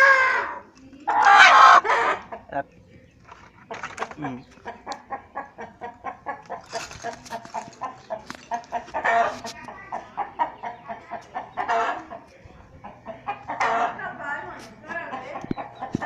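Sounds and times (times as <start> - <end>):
chicken squawks: 0.0 - 2.3
chickens clucking: 0.0 - 16.0.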